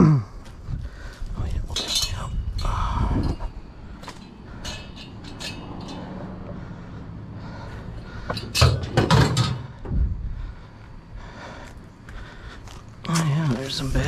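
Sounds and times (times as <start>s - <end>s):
loud knocks and clanks: 8.4s - 10.0s.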